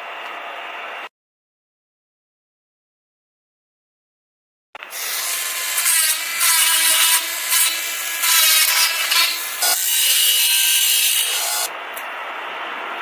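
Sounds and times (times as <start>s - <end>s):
tool grinding on a part: 4.8s - 11.7s.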